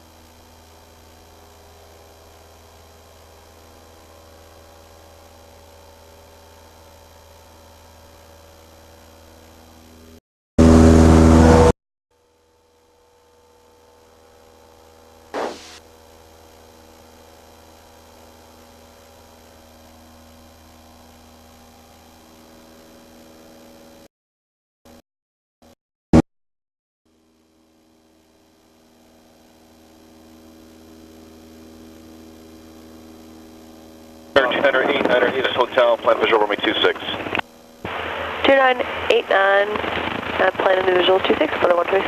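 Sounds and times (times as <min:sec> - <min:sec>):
loud burst of noise: 0:15.3 - 0:15.8, 0:34.4 - 0:42.0
faint airplane engine hum: 0:33.0 - 0:42.0.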